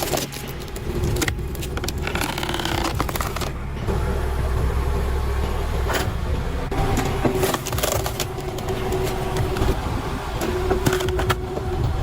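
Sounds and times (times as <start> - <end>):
wood cracking: 0.0 - 3.6, 6.9 - 9.7
log splitter engine running: 0.0 - 12.0.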